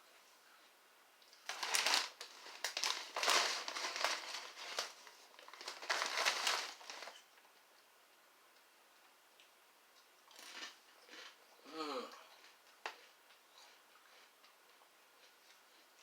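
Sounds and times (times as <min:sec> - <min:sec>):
snack bag crinkling: 0:01.3 - 0:07.2, 0:10.3 - 0:11.4.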